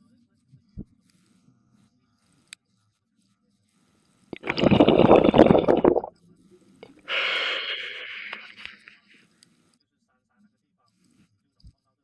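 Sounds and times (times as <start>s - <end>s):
underwater bubbles gushing: 4.4s - 6.1s.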